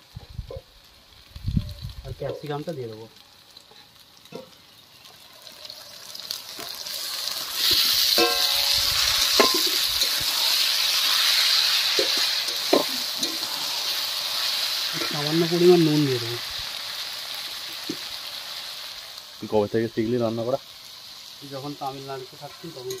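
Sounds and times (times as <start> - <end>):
vegetables sizzling in oil: 0.0 - 23.0
steel spatula scraping pan: 7.6 - 14.0.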